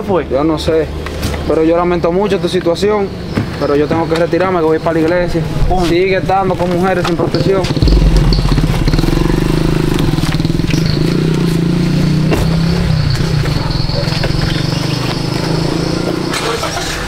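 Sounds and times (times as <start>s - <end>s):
car engine droning: 7.8s - 16.4s.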